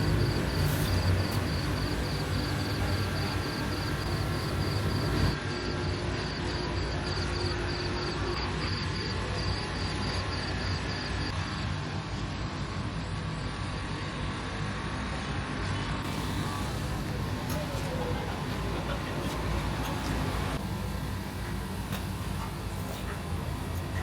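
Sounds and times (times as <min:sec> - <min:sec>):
insect chirping: 0:00.0 - 0:05.4.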